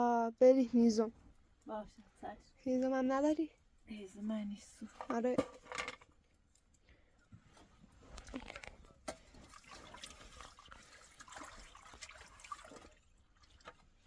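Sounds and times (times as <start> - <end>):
liquid dripping and trickling: 8.2 - 14.0.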